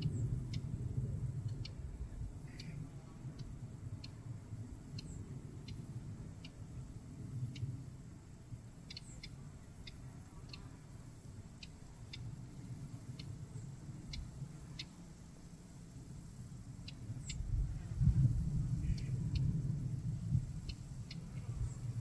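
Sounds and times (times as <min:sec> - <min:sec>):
bird ticking calls: 0:02.4 - 0:06.7, 0:07.3 - 0:07.8, 0:08.8 - 0:15.5, 0:16.2 - 0:17.6, 0:18.7 - 0:22.0
low background rumble: 0:15.5 - 0:22.0.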